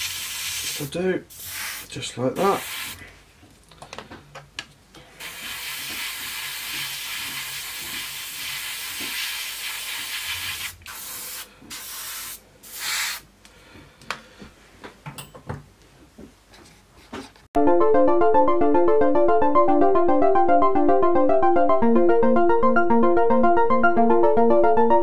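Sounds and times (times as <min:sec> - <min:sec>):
spray paint hissing: 0:00.0 - 0:03.0, 0:05.2 - 0:13.3.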